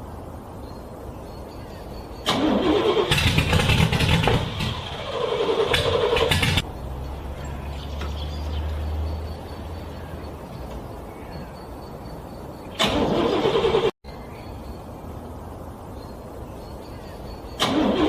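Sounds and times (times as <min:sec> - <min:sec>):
low steady engine rumble: 0:00.0 - 0:18.0
car starter motor cranking: 0:02.2 - 0:06.6, 0:12.8 - 0:13.9, 0:17.6 - 0:18.0.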